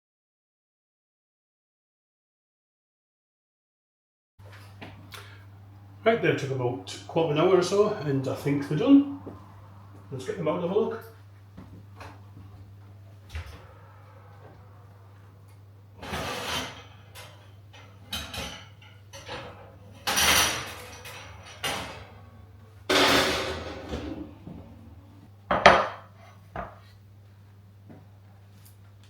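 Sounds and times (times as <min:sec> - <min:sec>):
steady low hum: 0:04.4 - 0:29.0
metal tins clattering and scraping: 0:22.9 - 0:24.2.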